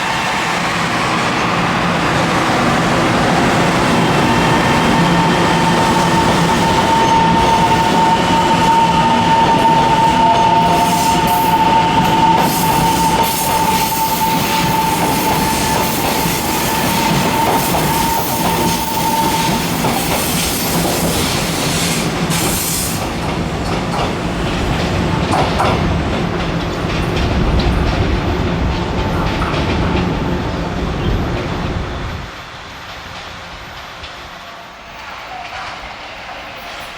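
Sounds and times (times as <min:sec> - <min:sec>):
train wheels rumbling on rails: 0:00.0 - 0:36.9.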